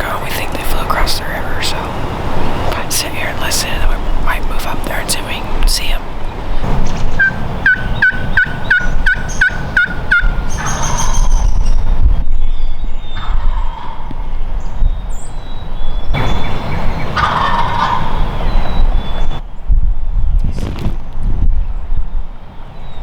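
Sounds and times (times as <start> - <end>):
turkey yelping: 7.2 - 11.3, 17.1 - 18.3.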